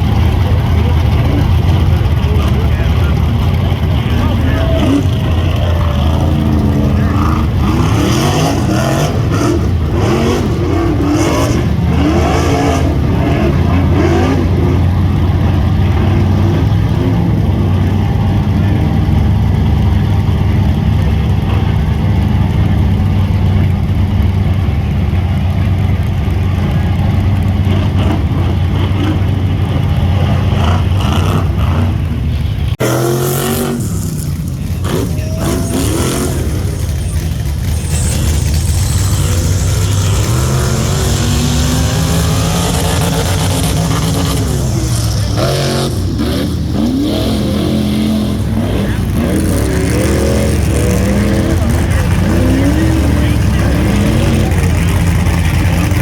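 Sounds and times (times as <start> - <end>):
buggy engines revving: 0.0 - 56.0.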